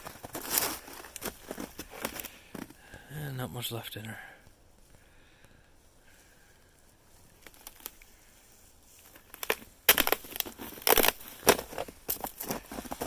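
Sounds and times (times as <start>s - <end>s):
footsteps crunching in snow: 0.0s - 2.8s, 8.9s - 13.0s.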